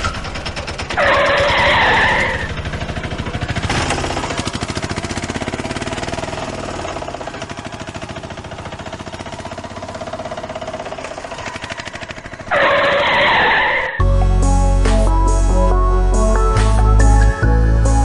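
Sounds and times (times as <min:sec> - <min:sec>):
small engine puttering: 0:00.0 - 0:14.0
loud skid-like screech: 0:00.9 - 0:02.6, 0:12.4 - 0:14.0.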